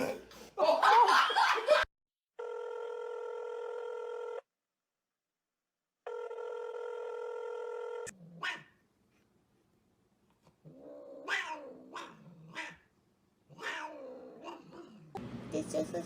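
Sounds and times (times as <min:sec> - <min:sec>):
electronic telephone ring tone: 0:02.4 - 0:04.4, 0:06.1 - 0:08.1.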